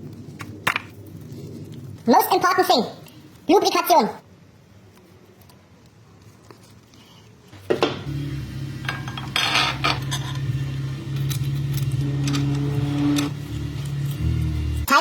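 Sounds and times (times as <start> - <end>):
steady low hum: 7.8 - 14.9.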